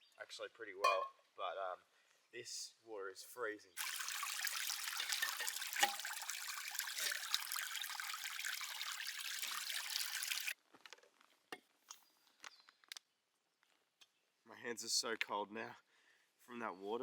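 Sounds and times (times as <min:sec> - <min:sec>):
water pouring over a spoon: 0:03.8 - 0:10.6.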